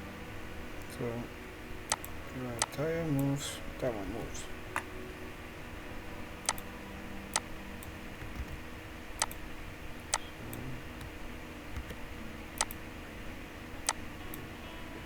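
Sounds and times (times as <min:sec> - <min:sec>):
low electrical hum: 0:00.0 - 0:15.0
computer mouse clicking: 0:01.9 - 0:03.4, 0:06.4 - 0:06.7, 0:09.2 - 0:09.5, 0:11.7 - 0:12.0, 0:12.6 - 0:12.8.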